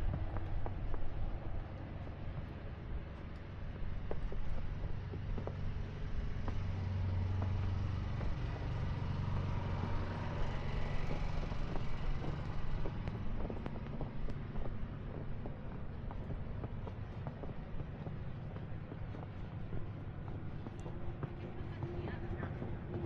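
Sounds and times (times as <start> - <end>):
engine humming: 0.0 - 23.0
vehicle passing: 6.0 - 15.0.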